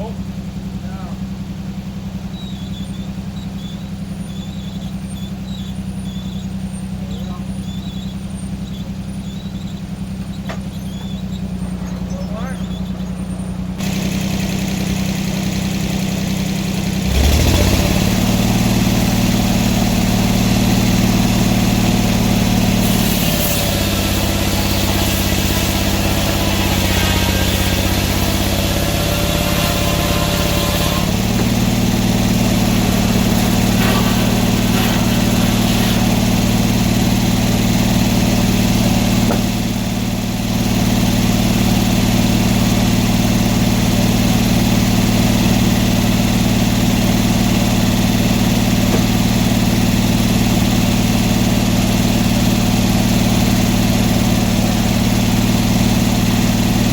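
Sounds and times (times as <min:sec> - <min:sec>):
sawmill engine running: 0:00.0 - 0:56.9
hiss: 0:22.6 - 0:31.0.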